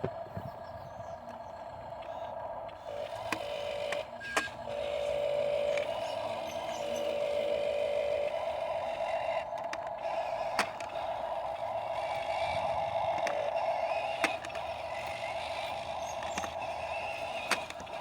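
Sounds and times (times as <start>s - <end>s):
truck engine whining: 0.0s - 18.0s
sharp clicks: 9.0s - 18.0s.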